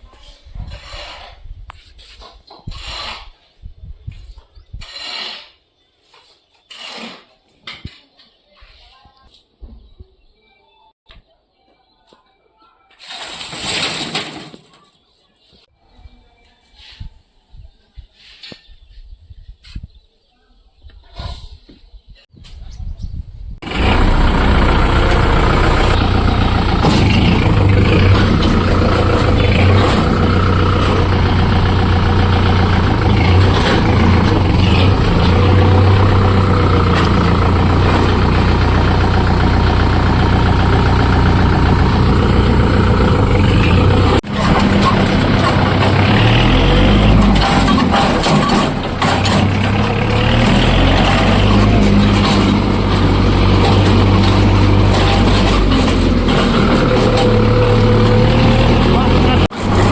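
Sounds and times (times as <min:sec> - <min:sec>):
tractor diesel engine running: 0:23.6 - 0:59.9.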